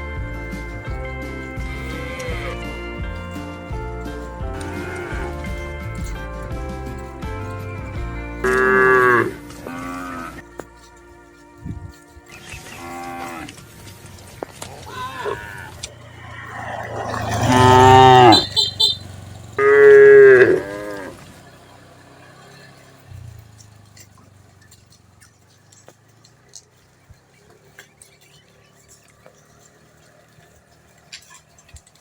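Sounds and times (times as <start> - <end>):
cattle mooing: 0.4 - 10.5, 12.3 - 21.5
faint clicks: 13.4 - 16.6.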